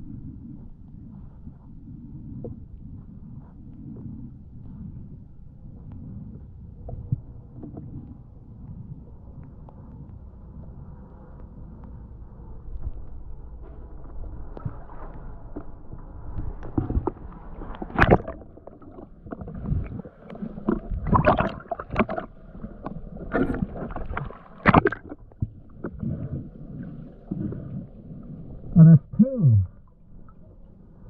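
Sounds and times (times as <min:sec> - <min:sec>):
muffled underwater movement: 0:00.0 - 0:31.0
water splashes: 0:14.2 - 0:30.5.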